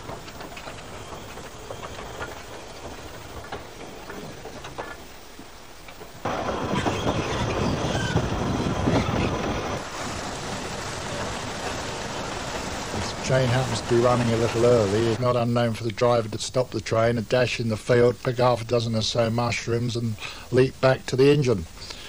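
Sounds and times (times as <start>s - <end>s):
train wheels clicking on rail joints: 0.0s - 16.0s
wheels rumbling and clattering on track: 0.0s - 16.6s.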